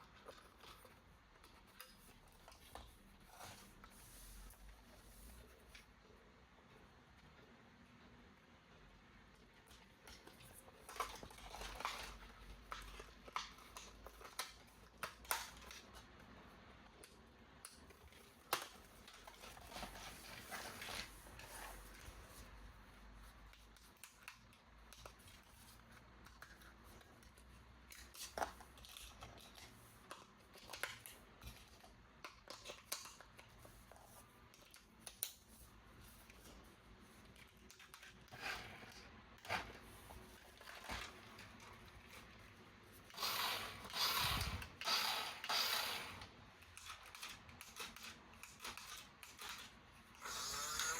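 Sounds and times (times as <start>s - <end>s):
plastic packaging rustling: 18.0s - 22.6s.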